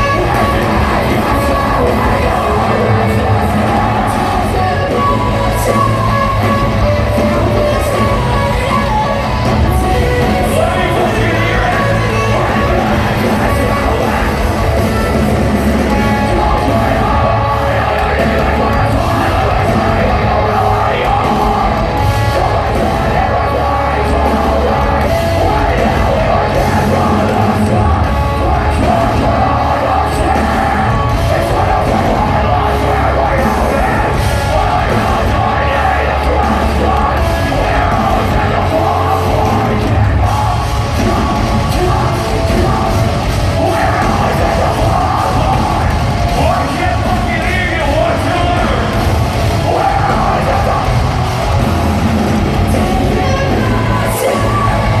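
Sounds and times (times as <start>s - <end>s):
rock band playing heavy music: 0.0s - 55.0s
yelled and sung vocals: 0.0s - 55.0s.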